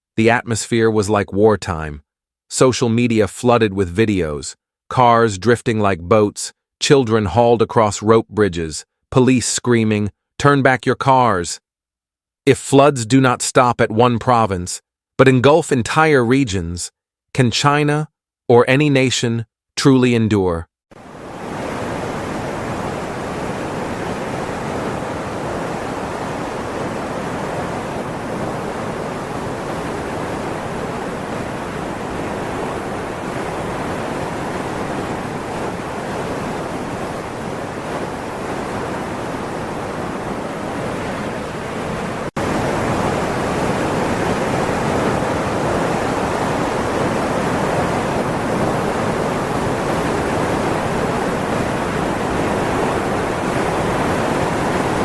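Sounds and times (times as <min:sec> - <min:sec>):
rushing water: 0:21.0 - 0:55.0.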